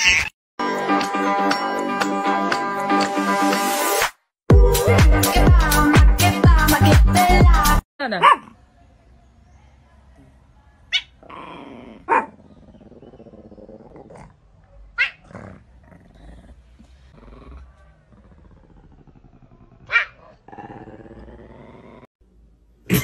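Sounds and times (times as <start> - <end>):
dance music: 0.6 - 7.8
cat growling: 11.2 - 14.4, 15.1 - 22.1.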